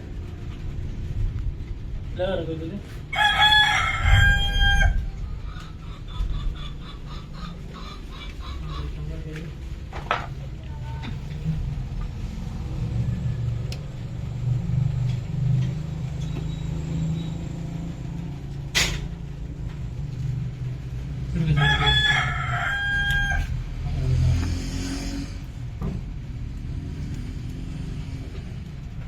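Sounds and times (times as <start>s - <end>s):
steady low rumble: 0.0s - 24.4s, 25.3s - 29.0s
rooster crowing: 3.1s - 5.7s, 21.3s - 24.1s.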